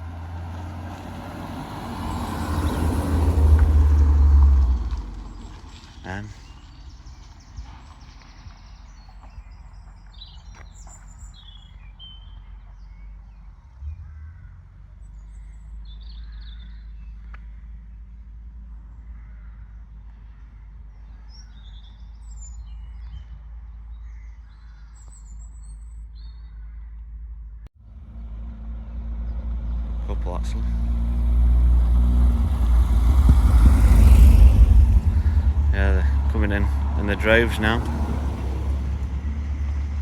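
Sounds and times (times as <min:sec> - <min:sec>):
small birds chirping: 0:01.5 - 0:18.3, 0:18.9 - 0:27.1
steady low rumble: 0:30.8 - 0:40.0.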